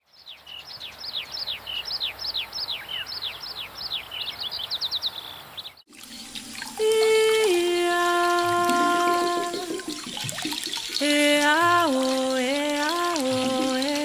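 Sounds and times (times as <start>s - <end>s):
bird chirping: 0.0s - 7.1s.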